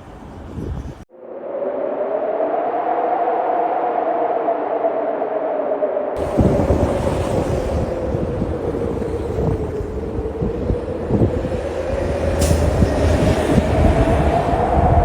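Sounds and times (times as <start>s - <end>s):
large vehicle engine rumbling: 6.2s - 15.0s.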